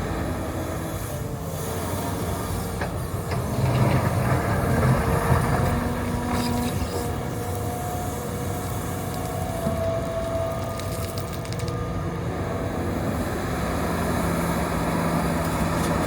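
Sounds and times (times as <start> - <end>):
excavator diesel engine working: 0.0 - 16.0.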